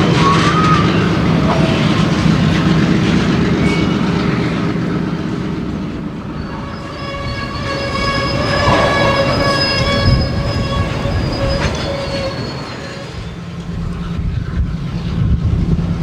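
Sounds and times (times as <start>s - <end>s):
wheel flanges squealing: 0.0s - 14.6s
freight train rumbling: 0.0s - 16.0s.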